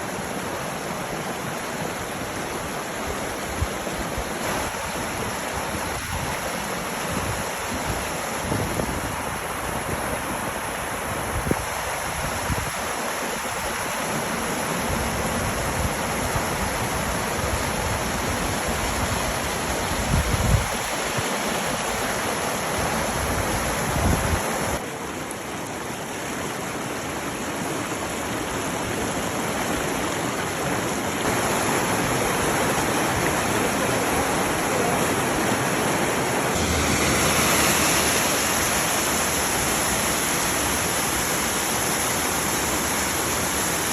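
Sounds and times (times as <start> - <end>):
stream water rushing: 0.0 - 43.9
wind rumbling on microphone: 3.1 - 13.5, 14.8 - 24.8.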